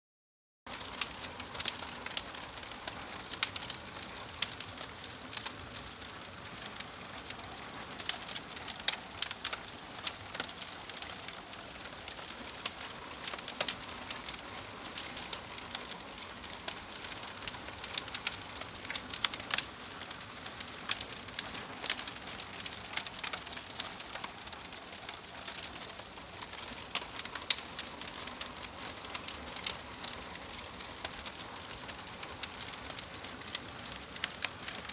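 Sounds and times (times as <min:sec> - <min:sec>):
wood fire crackling: 0:00.7 - 0:34.9.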